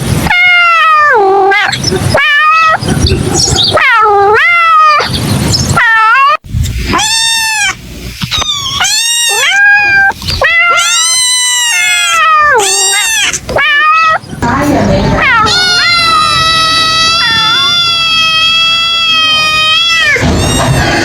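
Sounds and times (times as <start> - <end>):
kitten meowing loudly: 0.2 - 2.8, 5.8 - 14.2, 15.2 - 21.0.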